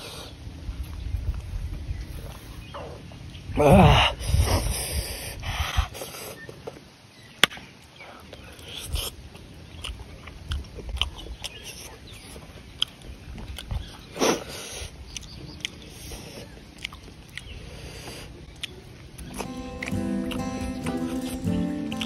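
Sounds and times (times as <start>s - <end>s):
wet chewing and lip smacks: 8.3s - 22.0s
mouth clicks: 12.8s - 22.0s
background music: 19.2s - 22.0s.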